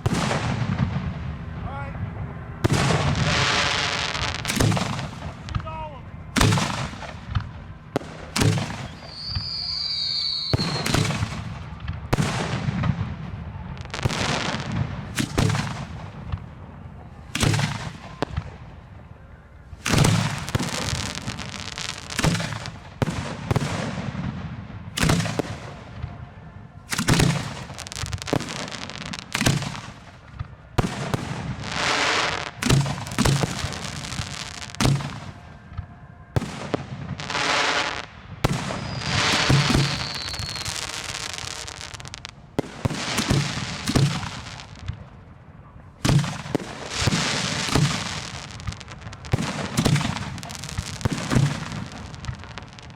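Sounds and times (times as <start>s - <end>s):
fireworks banging: 0.0s - 18.7s, 19.8s - 26.2s, 26.9s - 45.2s, 46.0s - 52.9s
fireworks crackling: 0.0s - 45.3s, 46.0s - 52.9s
firework whistle: 8.0s - 12.3s, 31.0s - 44.6s.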